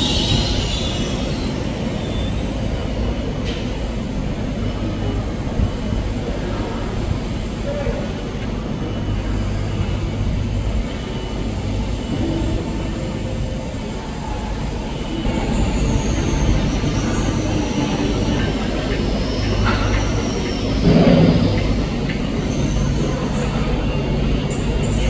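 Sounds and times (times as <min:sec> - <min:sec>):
thin high squeal falling in pitch: 0:00.0 - 0:02.9
train rumbling along tracks: 0:00.0 - 0:25.0.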